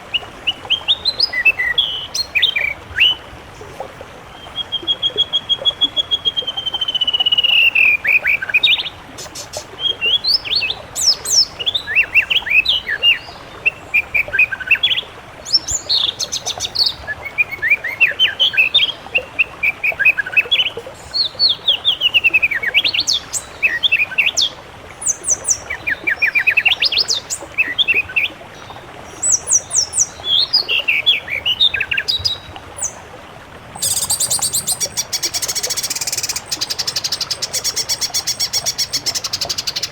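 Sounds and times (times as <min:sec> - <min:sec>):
songbird singing trills and whistles: 0:33.8 - 0:39.9.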